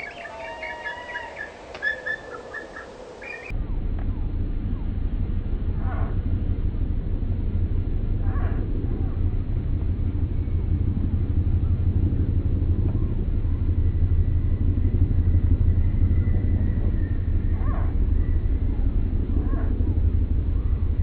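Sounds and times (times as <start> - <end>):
faint drawn-out bird call: 0.0 - 3.5
deep rumble: 0.0 - 21.0.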